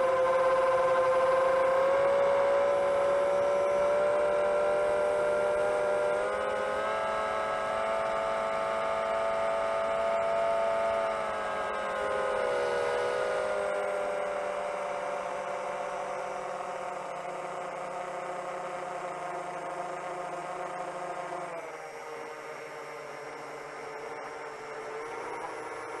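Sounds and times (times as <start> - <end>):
quadcopter propellers whining: 11.1 - 26.0.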